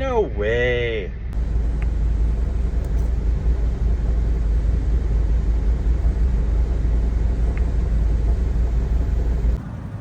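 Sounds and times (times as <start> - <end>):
low rumble: 1.1 - 10.0.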